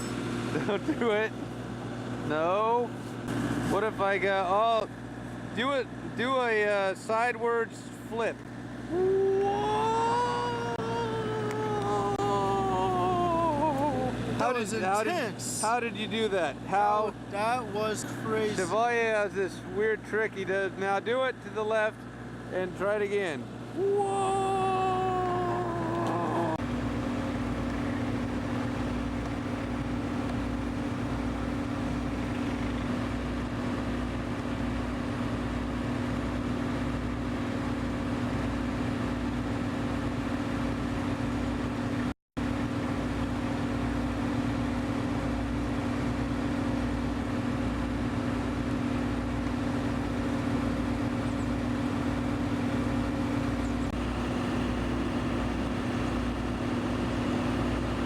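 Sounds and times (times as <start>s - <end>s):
engine idling: 22.0s - 58.0s.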